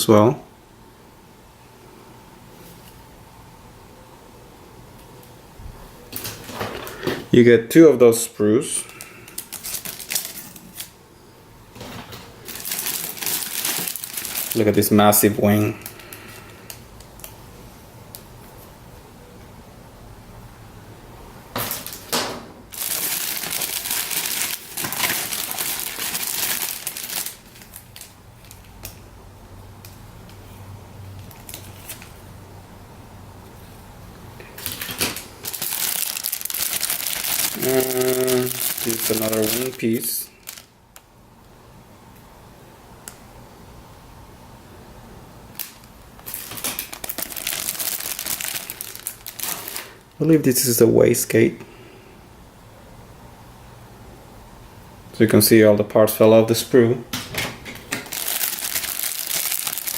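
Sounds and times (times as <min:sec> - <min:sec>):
packaging crinkling: 0:08.8 - 0:11.0, 0:11.8 - 0:17.4, 0:21.6 - 0:29.0, 0:31.2 - 0:32.2, 0:34.4 - 0:41.1, 0:45.5 - 0:50.2, 0:57.8 - 0:59.9.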